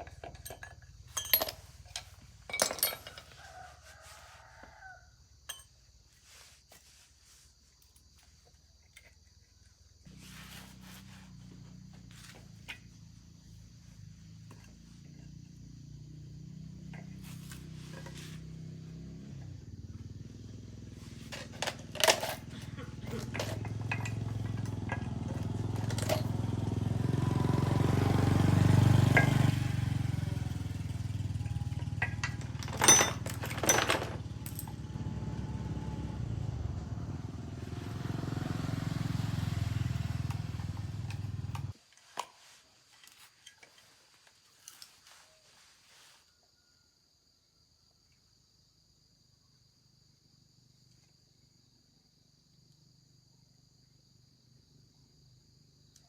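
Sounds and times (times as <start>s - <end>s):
small engine running: 10.1s - 41.8s.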